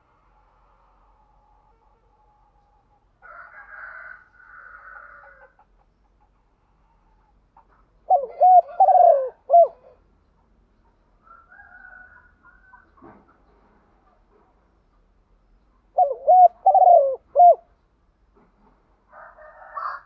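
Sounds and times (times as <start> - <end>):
dove cooing: 8.1 - 10.0, 15.9 - 17.7.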